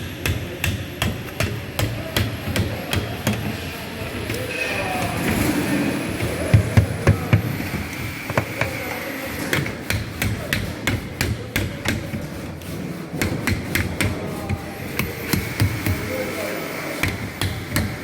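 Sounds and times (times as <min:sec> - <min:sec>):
hammer striking sheet metal: 0:09.4 - 0:12.3.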